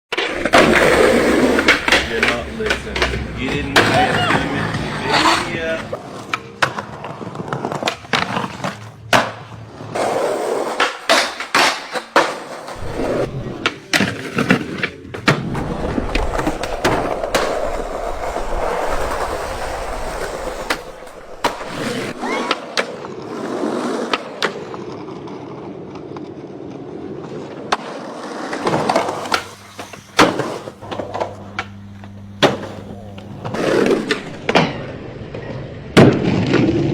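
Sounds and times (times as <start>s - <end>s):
skateboard clacking on ground: 0.1s - 19.2s
skateboard wheels rolling: 0.1s - 36.9s.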